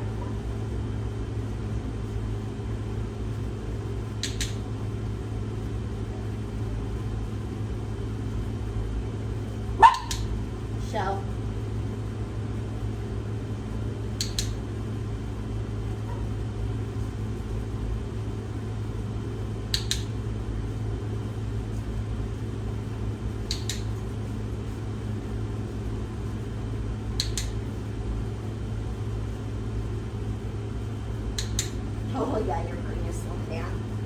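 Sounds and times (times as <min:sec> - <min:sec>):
steady low hum: 0:00.0 - 0:34.0
sharp double clicks: 0:04.2 - 0:04.6, 0:14.2 - 0:14.6, 0:19.7 - 0:20.1, 0:23.5 - 0:23.9, 0:27.2 - 0:27.6, 0:31.4 - 0:31.8.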